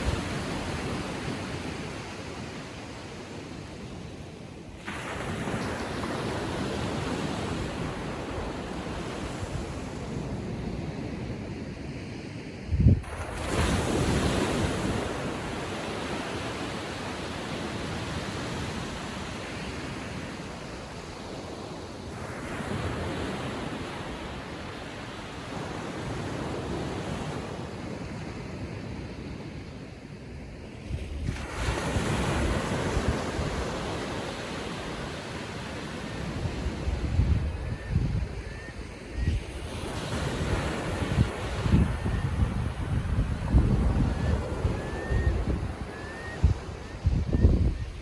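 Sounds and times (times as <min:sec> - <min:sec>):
ocean waves breaking on beach: 0:00.0 - 0:48.0
wind buffeting microphone: 0:12.6 - 0:16.6, 0:35.8 - 0:48.0.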